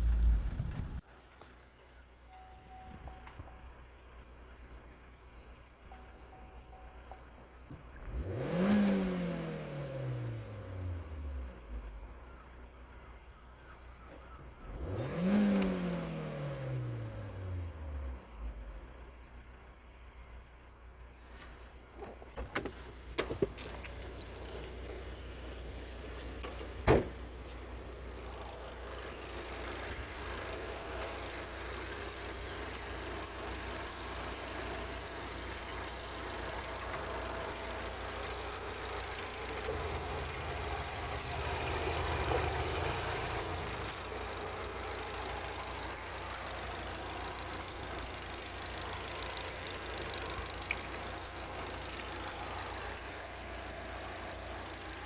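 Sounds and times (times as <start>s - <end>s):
engine clicks: 0.0s - 3.7s, 14.0s - 15.9s, 22.0s - 55.0s
car engine idling: 0.0s - 9.8s, 22.8s - 55.0s.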